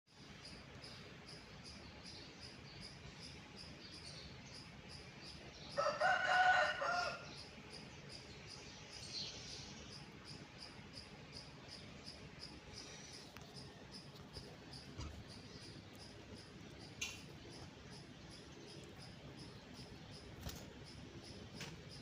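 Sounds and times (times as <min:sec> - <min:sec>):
high insect chirping: 0:09.8 - 0:22.0.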